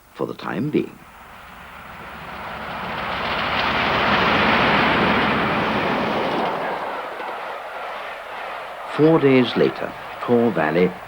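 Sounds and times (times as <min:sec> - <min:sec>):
steam train passing: 0:00.0 - 0:11.0.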